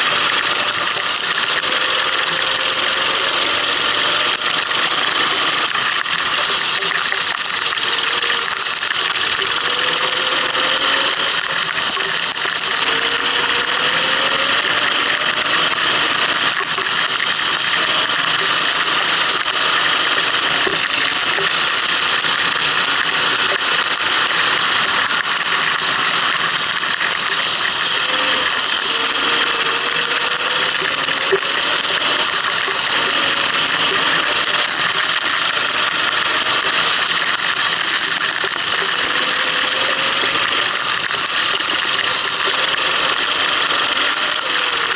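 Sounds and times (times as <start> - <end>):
go-kart engine accelerating: 0.0 - 44.9.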